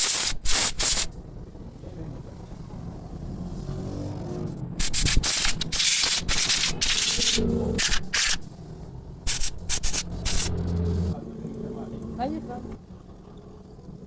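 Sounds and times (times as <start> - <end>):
spray nozzle hissing blasts: 0.0 - 1.1, 4.8 - 8.5, 9.3 - 10.8.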